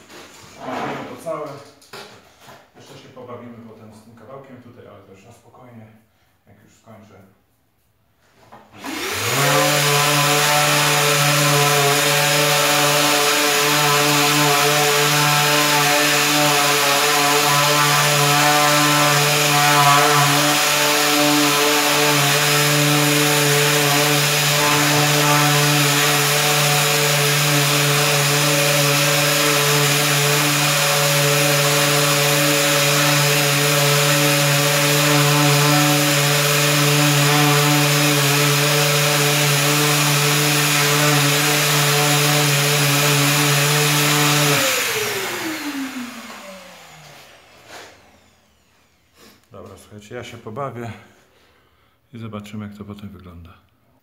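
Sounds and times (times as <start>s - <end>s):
power sander running: 8.8s - 49.1s.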